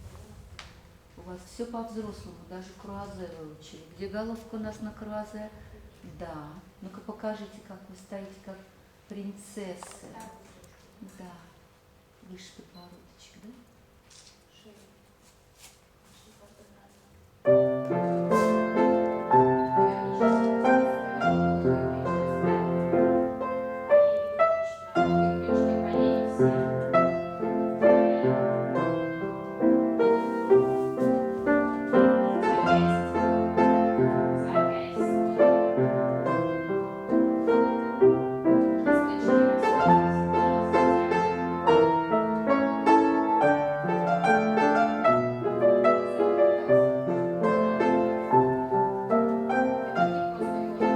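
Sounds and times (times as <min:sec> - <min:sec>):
classical piano accompaniment: 0:17.2 - 0:50.9.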